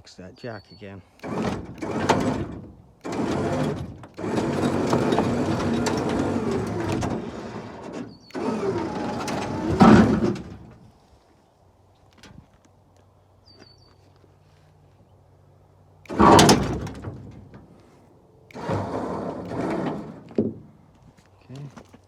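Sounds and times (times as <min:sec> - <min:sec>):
winch hauling: 0:00.8 - 0:11.0, 0:16.0 - 0:21.7
load dragging and scraping: 0:01.2 - 0:11.1, 0:16.0 - 0:20.8
rubbing: 0:18.5 - 0:20.4.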